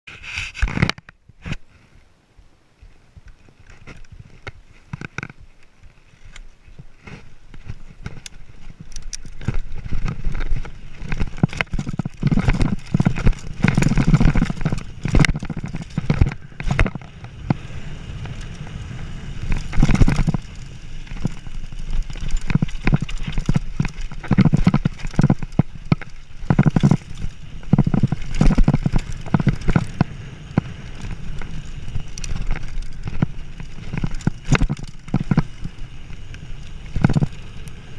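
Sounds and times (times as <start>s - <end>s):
bike clattering over rocks: 7.5s - 17.6s, 19.4s - 37.6s.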